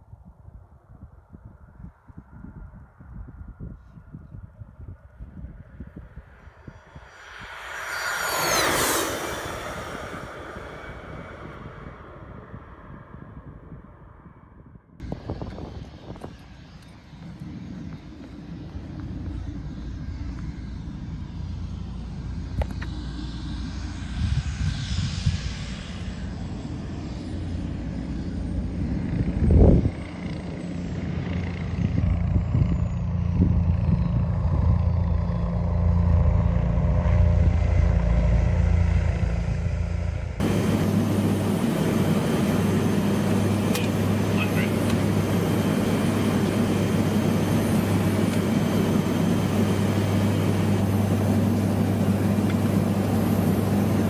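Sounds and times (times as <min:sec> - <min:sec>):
aircraft engine drone: 0:01.5 - 0:54.0
faint high whine: 0:05.7 - 0:13.3, 0:40.4 - 0:54.0.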